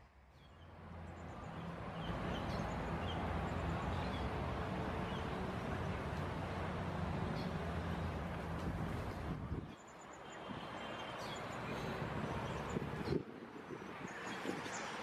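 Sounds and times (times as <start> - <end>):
small birds chirping: 0.3 - 6.4, 7.2 - 15.0
vehicle engine rumble: 0.6 - 9.7.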